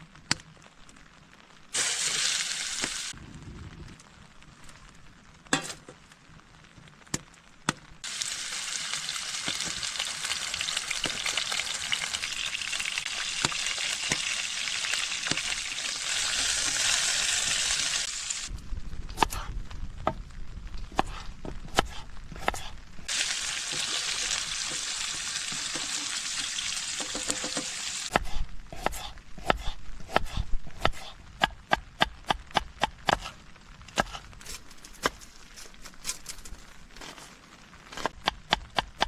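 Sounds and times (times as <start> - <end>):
food sizzling in a pan: 1.7 - 3.2, 8.0 - 18.5, 23.1 - 28.1.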